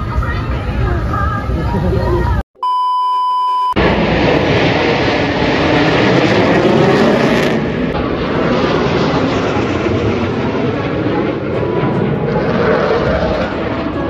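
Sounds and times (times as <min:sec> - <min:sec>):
steady beep tone: 0:02.6 - 0:03.8
airplane engine flying over: 0:03.8 - 0:14.0.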